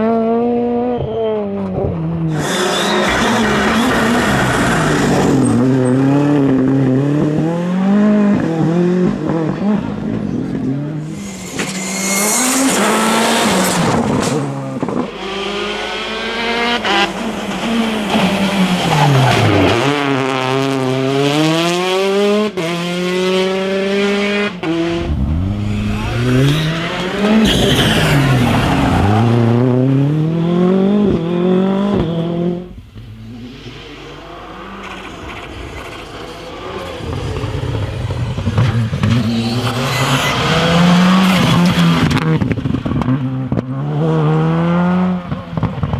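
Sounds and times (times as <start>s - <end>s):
rally car engine at full throttle: 0.0s - 45.9s
second car approaching: 24.2s - 43.1s.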